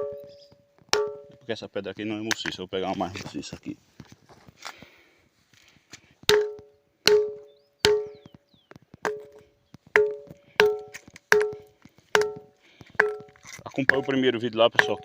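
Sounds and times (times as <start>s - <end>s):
stone striking ringing rock: 0.0s - 1.5s, 6.3s - 8.4s, 9.0s - 15.0s.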